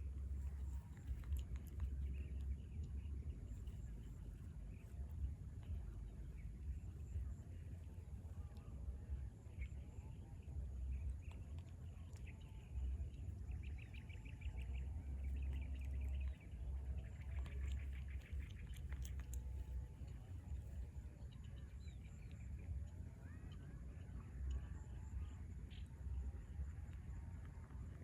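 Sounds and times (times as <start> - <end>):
low rumble: 0.0 - 28.0.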